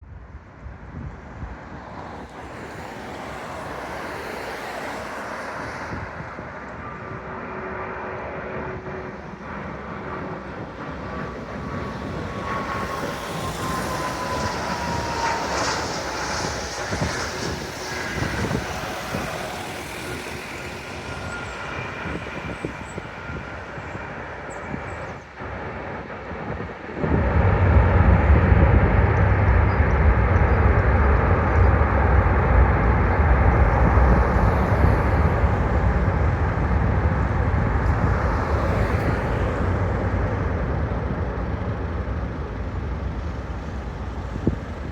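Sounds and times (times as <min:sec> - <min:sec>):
jet engines whining: 0:01.8 - 0:44.9
loud low rumble: 0:25.4 - 0:44.9.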